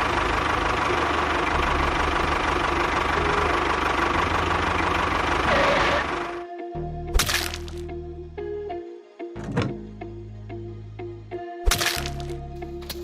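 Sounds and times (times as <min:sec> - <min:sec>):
tractor engine knocking: 0:00.0 - 0:06.4.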